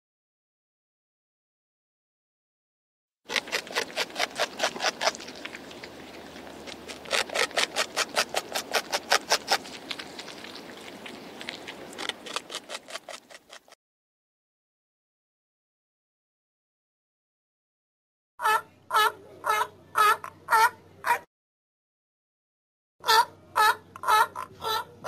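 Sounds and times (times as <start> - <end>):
animal chewing food crunchily: 3.3 - 13.8.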